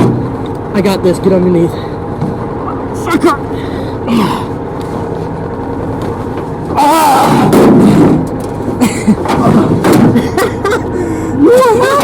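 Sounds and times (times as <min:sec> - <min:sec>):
man groaning with effort: 0:04.0 - 0:04.6, 0:06.7 - 0:08.1.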